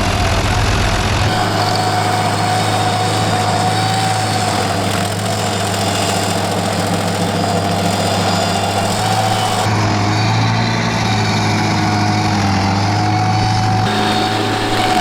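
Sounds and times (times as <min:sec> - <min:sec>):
steady whine: 0:00.8 - 0:09.8, 0:13.8 - 0:15.0
stump grinder engine running: 0:01.2 - 0:10.3, 0:11.4 - 0:15.0.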